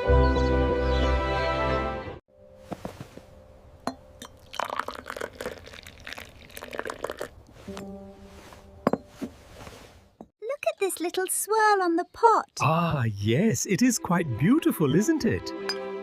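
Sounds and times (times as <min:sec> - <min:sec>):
music: 0:00.0 - 0:02.5, 0:07.7 - 0:08.9, 0:13.0 - 0:16.0
liquid pouring: 0:04.2 - 0:07.8
crockery clinking: 0:08.8 - 0:09.2.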